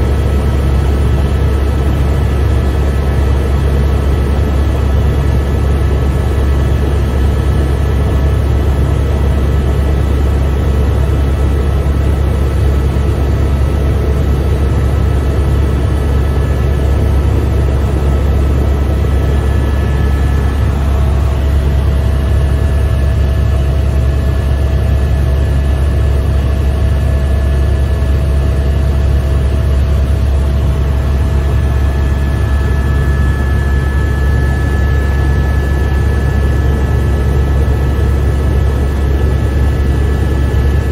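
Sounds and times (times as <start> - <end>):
helicopter rotor drone: 0.0 - 40.9
drivetrain whine: 16.1 - 23.2.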